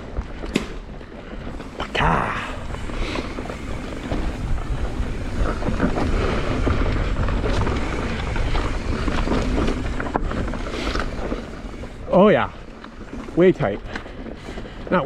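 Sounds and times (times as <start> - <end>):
bike clattering over bumps: 0.0 - 15.0
wind rushing over microphone: 0.0 - 15.0.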